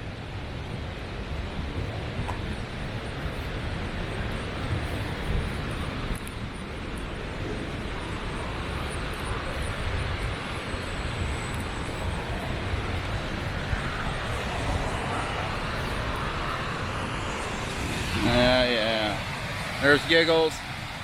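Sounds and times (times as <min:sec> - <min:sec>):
waterfall roaring: 0:07.9 - 0:20.6.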